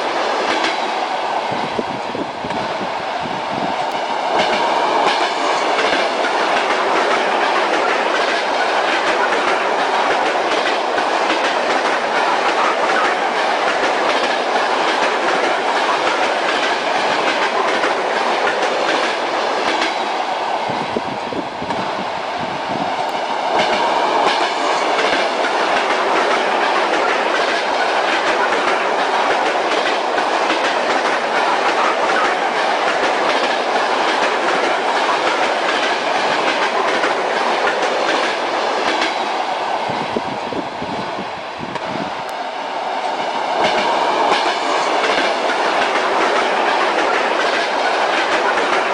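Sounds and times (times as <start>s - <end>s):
railway car rumble: 0.0s - 48.9s
train wheels clattering over joints: 4.3s - 20.0s, 23.5s - 39.3s, 43.5s - 48.9s.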